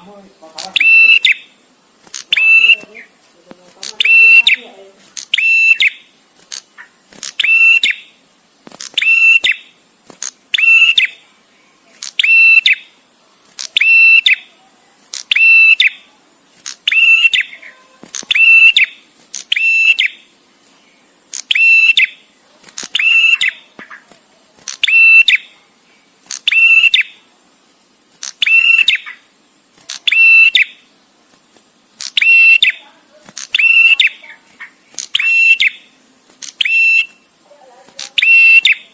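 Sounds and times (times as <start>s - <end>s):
bird trilled call: 0.6s - 1.6s, 2.2s - 3.1s, 3.9s - 8.2s, 9.0s - 9.8s, 10.5s - 11.2s, 12.0s - 12.9s, 13.6s - 14.5s, 15.2s - 16.0s, 16.8s - 20.3s, 21.4s - 22.2s, 22.9s - 24.0s, 24.8s - 25.5s, 26.3s - 27.2s, 28.2s - 29.3s, 30.0s - 30.8s, 32.0s - 32.8s, 33.4s - 35.9s, 36.6s - 37.3s, 38.0s - 38.9s.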